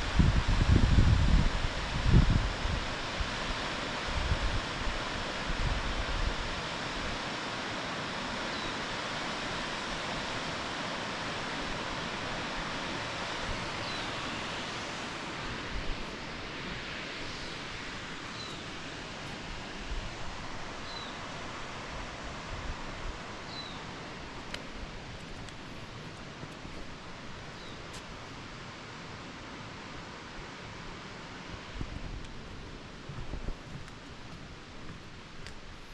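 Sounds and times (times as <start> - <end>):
waterfall rushing: 0.0 - 35.8
bird chirping: 23.5 - 23.8.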